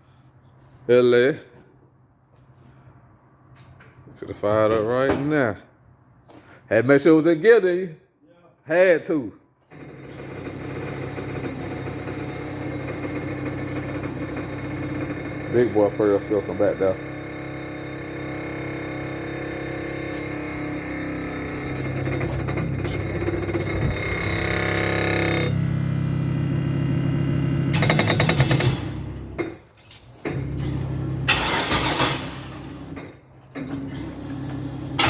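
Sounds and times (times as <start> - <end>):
engine running: 9.8 - 29.5, 30.3 - 33.0, 33.6 - 35.0.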